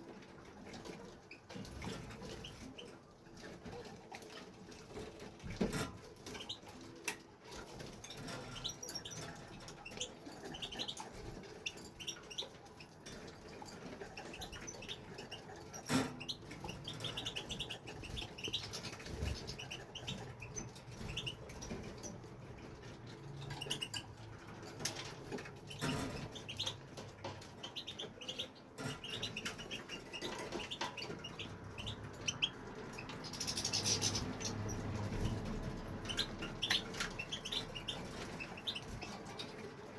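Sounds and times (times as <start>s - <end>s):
goldfinch twittering: 8.0s - 39.7s.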